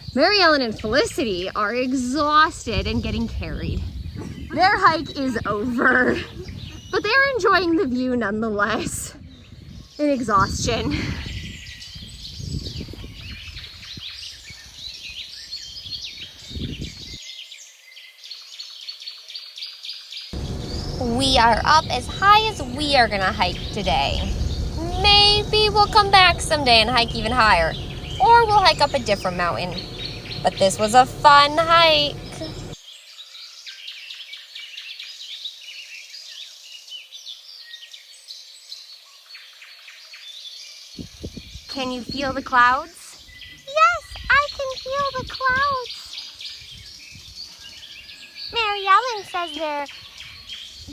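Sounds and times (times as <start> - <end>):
birds chirping in chorus: 0.0 - 7.7, 9.2 - 19.0, 19.7 - 50.9
low rumbling noise: 20.4 - 32.8.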